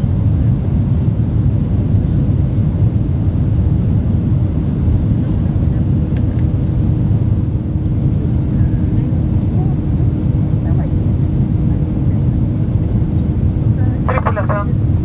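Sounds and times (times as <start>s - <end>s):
airplane cabin engine rush: 0.0s - 15.0s
faint constant hum: 13.7s - 15.0s.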